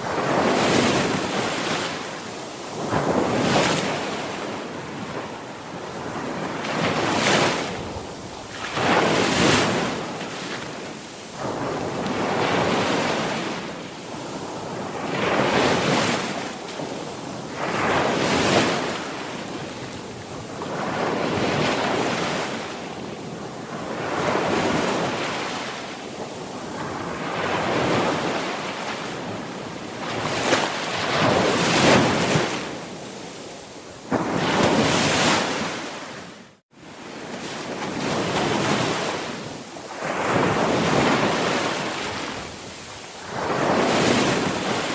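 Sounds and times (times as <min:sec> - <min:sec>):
waves breaking: 0:26.4 - 0:44.9.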